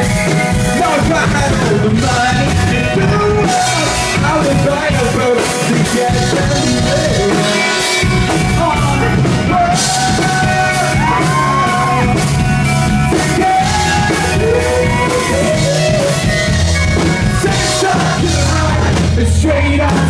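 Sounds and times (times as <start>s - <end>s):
live rock band playing: 0.0s - 20.0s
person singing: 0.5s - 12.4s, 13.0s - 20.0s.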